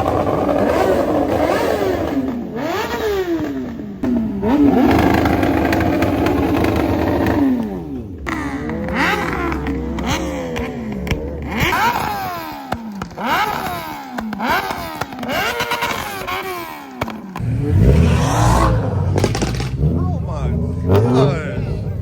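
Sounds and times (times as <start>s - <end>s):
car engine revving: 0.0s - 22.0s
heavy low rumble: 17.4s - 22.0s.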